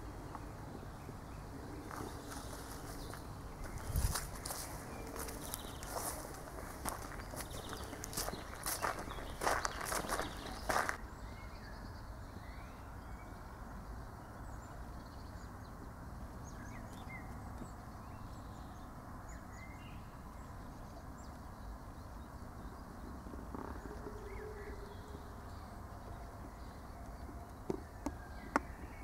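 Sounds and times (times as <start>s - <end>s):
footstep on a path: 1.9s - 11.0s.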